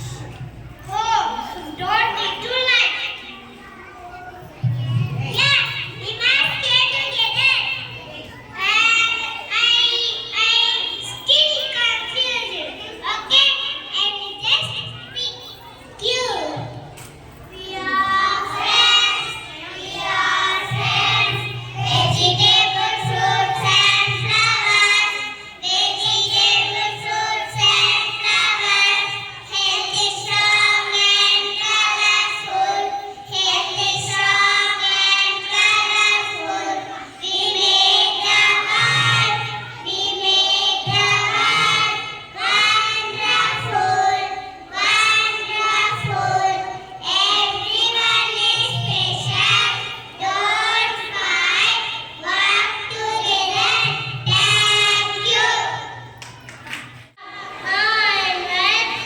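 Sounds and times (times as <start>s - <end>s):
children singing in chorus: 12.8s - 59.0s.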